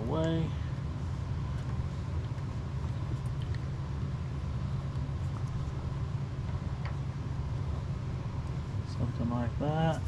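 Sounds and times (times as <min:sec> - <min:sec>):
low machinery rumble: 0:00.0 - 0:10.0.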